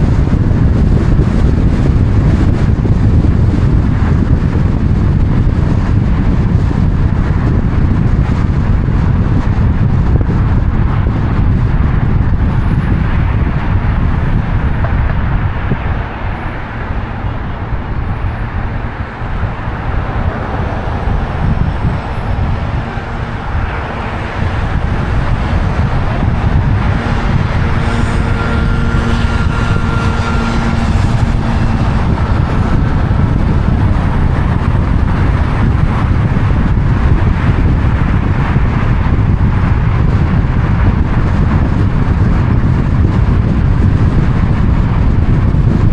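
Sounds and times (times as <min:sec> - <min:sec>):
road traffic rumble: 0:00.0 - 0:45.9
humming tone: 0:16.2 - 0:38.0.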